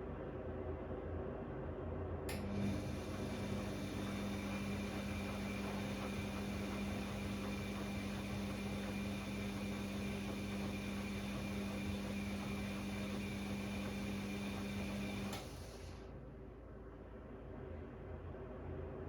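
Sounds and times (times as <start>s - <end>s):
washing machine motor humming: 2.3s - 16.1s.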